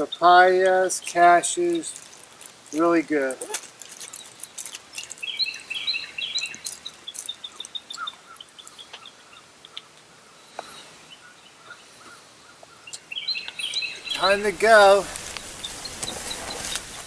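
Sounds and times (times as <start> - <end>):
songbird chirping: 0.0 - 17.0.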